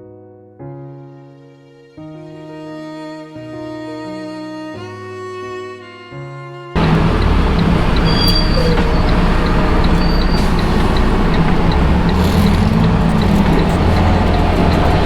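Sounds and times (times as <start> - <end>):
road and wind noise: 6.8 - 15.0
truck engine drone: 6.8 - 15.0.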